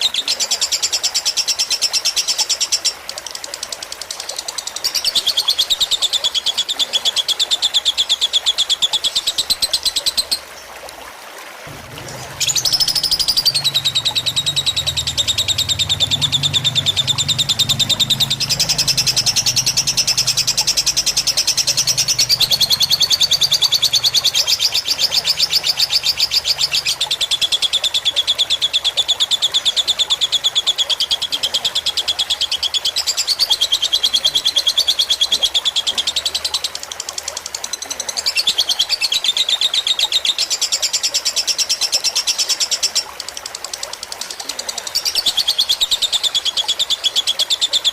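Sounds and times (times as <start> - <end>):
lovebird fast high trill: 12.2 - 26.3.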